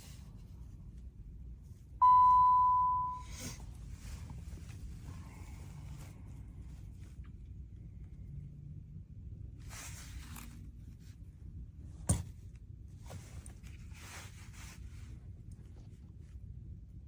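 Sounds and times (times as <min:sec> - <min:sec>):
car engine rumble inside cabin: 0:00.0 - 0:09.3
rustling handling noise: 0:03.4 - 0:08.1, 0:09.5 - 0:16.8.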